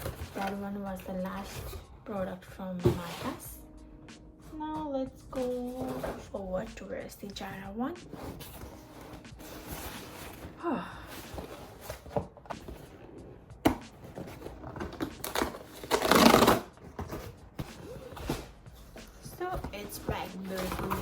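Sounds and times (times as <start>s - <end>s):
packaging rustling: 8.1s - 21.0s
knocks and taps on parcel: 13.6s - 21.0s.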